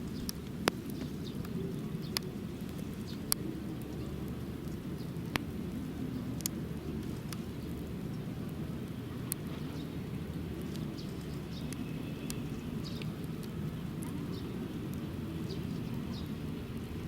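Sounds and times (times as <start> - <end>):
high chirps and ticks: 9.2 - 16.5.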